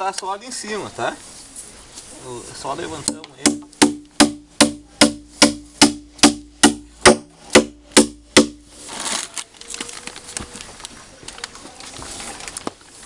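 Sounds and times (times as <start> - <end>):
rustle: 0.0 - 3.8, 8.1 - 13.0
sharp ringing knocks: 3.1 - 8.6.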